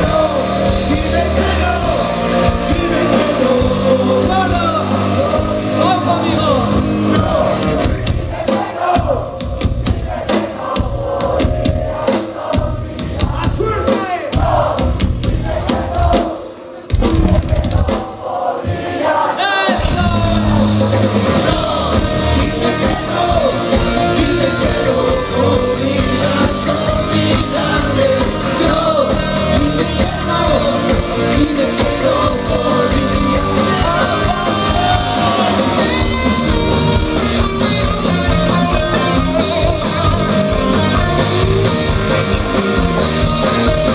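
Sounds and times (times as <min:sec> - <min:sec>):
person singing: 0:00.0 - 0:09.4, 0:19.0 - 0:43.9
rock band playing live: 0:00.0 - 0:18.2, 0:19.1 - 0:43.9.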